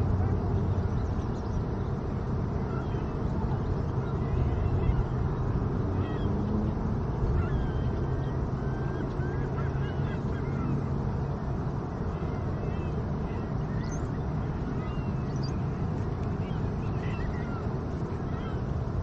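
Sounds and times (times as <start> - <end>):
steady low rumble: 0.0 - 19.0
faint bird calls chirping: 2.6 - 6.6, 7.2 - 18.7.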